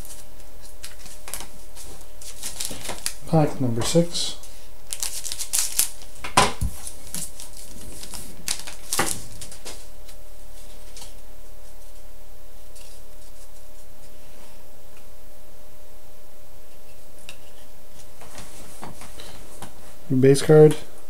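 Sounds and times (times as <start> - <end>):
foil wrapper crinkling: 0.0 - 4.1, 4.9 - 11.2.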